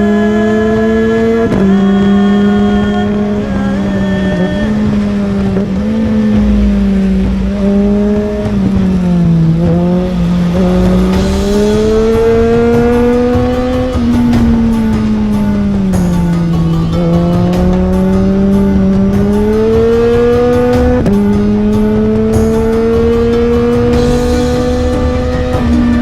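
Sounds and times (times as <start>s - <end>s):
motorcycle engine running hard: 0.0s - 26.0s.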